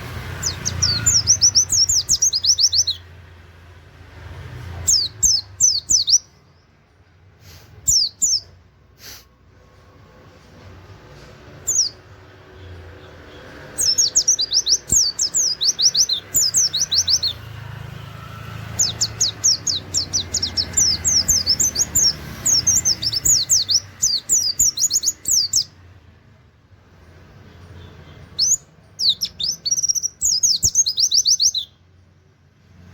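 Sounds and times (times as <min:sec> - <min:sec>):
bird singing rapid notes: 0:00.0 - 0:03.2, 0:04.8 - 0:06.8, 0:07.8 - 0:08.6, 0:11.5 - 0:25.9, 0:27.5 - 0:31.8.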